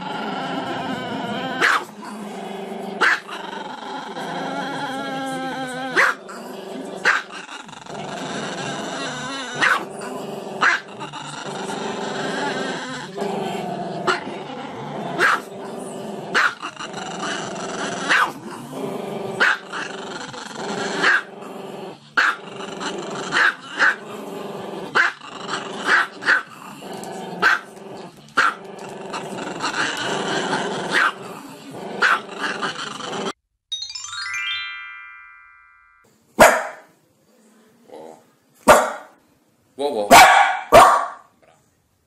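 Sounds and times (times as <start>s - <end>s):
dog barking: 1.6s - 1.9s, 3.0s - 3.2s, 6.0s - 6.2s, 9.6s - 9.9s, 10.6s - 10.8s, 15.2s - 15.5s, 16.4s - 16.6s, 18.1s - 18.4s, 19.4s - 19.6s, 21.0s - 21.3s, 25.9s - 26.5s, 27.4s - 27.7s, 30.9s - 31.2s, 32.0s - 32.2s, 36.4s - 36.9s, 38.6s - 39.2s, 40.1s - 41.3s.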